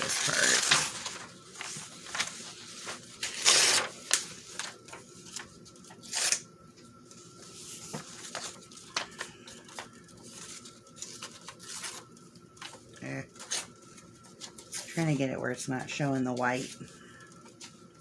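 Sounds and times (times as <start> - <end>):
paper rustling: 0.0 - 6.4, 7.0 - 18.0
paper tearing: 0.0 - 6.4.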